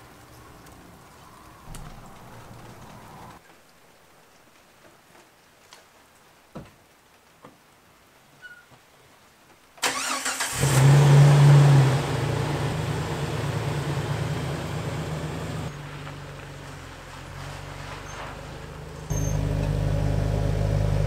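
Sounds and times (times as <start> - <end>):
engine starter cranking: 9.8 - 11.2
engine revving and idling: 10.3 - 21.0.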